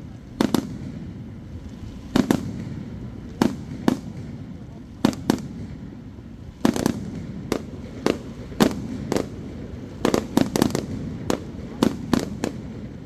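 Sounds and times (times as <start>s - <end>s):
firework shells bursting: 6.7s - 12.9s.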